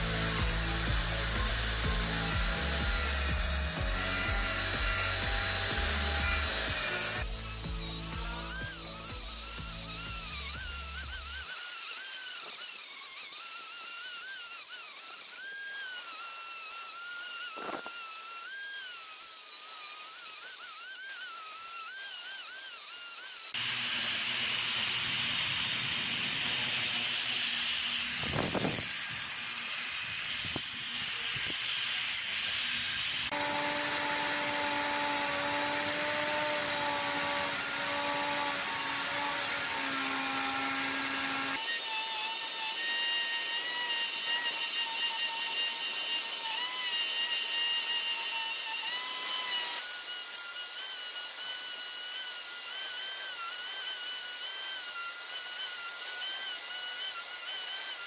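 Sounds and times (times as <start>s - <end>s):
steady motor hum: 0.0s - 12.6s, 23.5s - 41.7s
power tool high whine: 0.0s - 58.0s
rough hissing tool noise: 0.0s - 58.0s.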